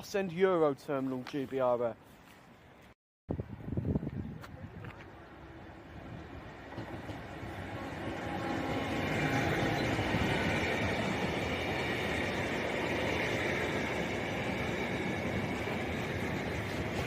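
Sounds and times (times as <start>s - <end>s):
freight train passing: 5.0s - 17.0s.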